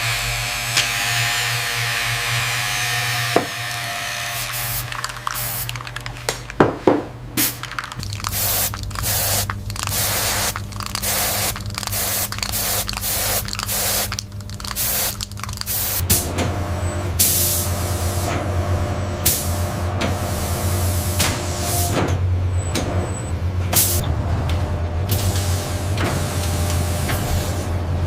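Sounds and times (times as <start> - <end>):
low machine hum: 0.0 - 28.0
hissing spray bursts: 3.5 - 6.2, 7.4 - 16.0.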